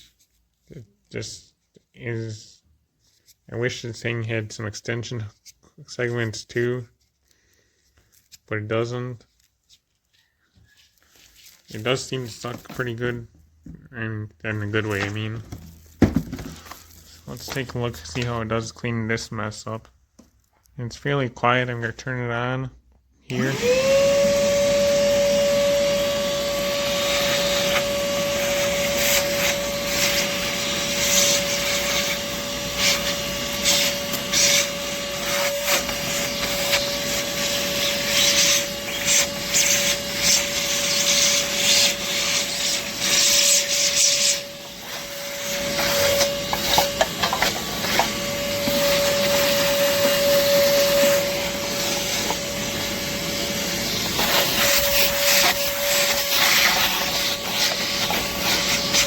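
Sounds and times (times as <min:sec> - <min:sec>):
shop vacuum motor whine: 0:23.3 - 0:59.0.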